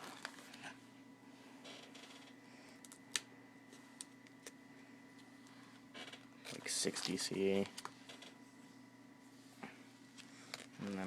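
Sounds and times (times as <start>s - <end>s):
plastic pages rustling: 0.0s - 0.5s
low steady hum: 0.0s - 11.0s.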